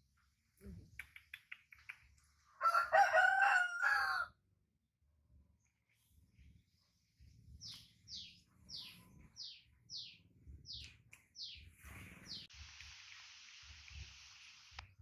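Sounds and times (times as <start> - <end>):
small bird chirping: 0.6 - 2.5, 5.6 - 12.5
steady hiss: 11.8 - 15.0.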